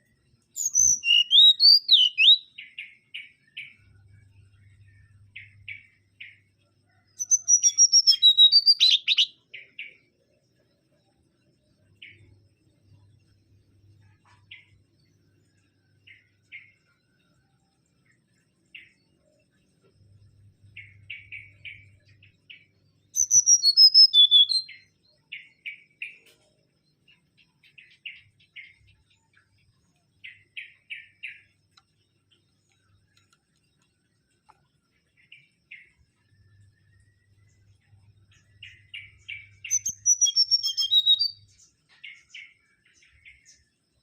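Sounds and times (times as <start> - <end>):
short bird chirps: 0.5 - 10.0, 20.7 - 34.0, 35.0 - 43.6.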